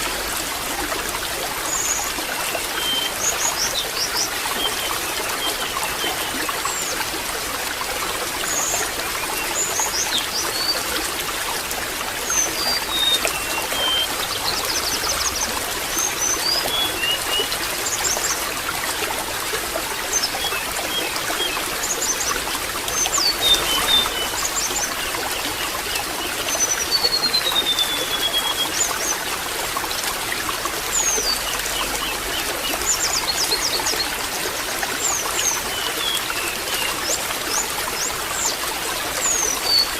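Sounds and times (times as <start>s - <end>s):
water trickling: 0.0s - 39.9s
small birds chirping and whistling: 23.0s - 25.7s, 26.5s - 28.9s.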